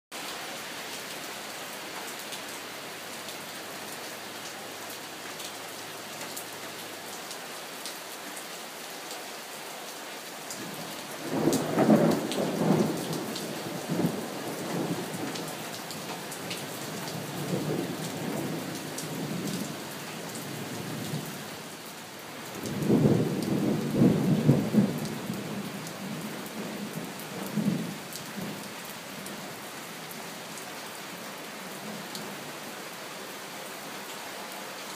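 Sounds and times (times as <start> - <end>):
steady rain falling: 0.1 - 34.9
thunder rumbling: 11.2 - 15.4.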